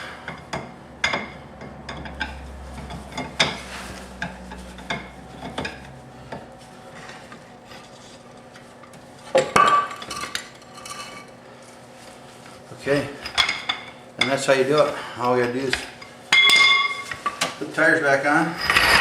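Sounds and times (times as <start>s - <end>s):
low steady hum: 0.0s - 17.9s
metal clinks and knocks: 0.3s - 7.3s.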